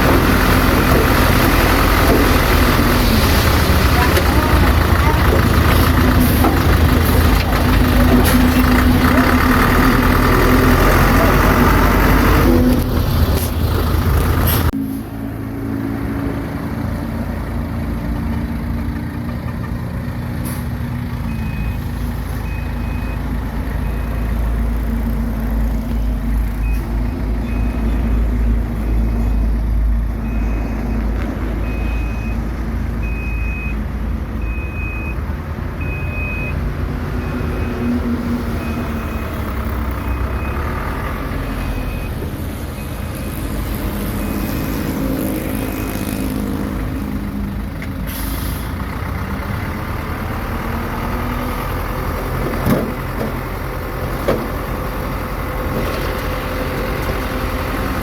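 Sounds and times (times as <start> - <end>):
heavy machinery diesel engine: 0.0 - 58.0
reversing alarm beeping: 30.2 - 46.1.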